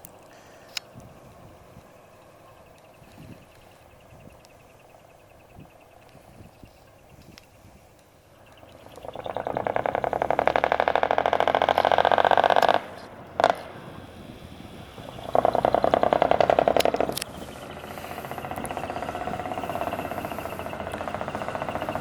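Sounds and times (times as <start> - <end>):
diesel truck engine revving: 8.8 - 22.0.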